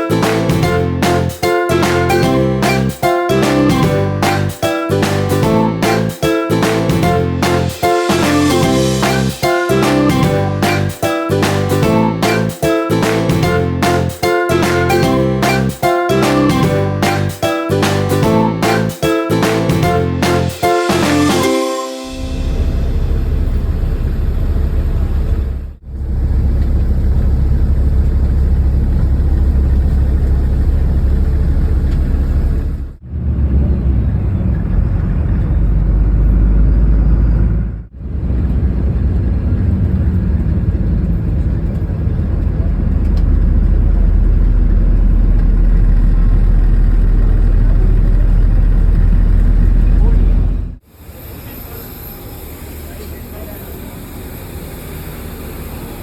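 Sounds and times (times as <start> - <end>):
airliner cabin engine roar: 22.2 - 56.0.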